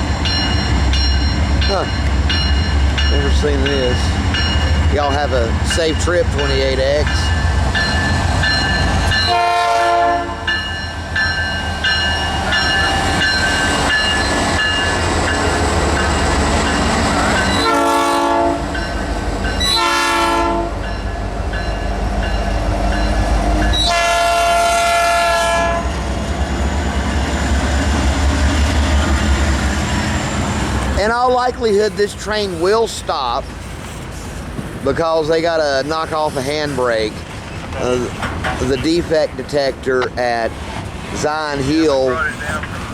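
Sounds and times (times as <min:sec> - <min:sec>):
diesel locomotives rumbling: 0:00.0 - 0:42.9
locomotive air horn blasts: 0:09.2 - 0:10.6, 0:17.6 - 0:18.7, 0:19.6 - 0:20.8, 0:23.8 - 0:26.0.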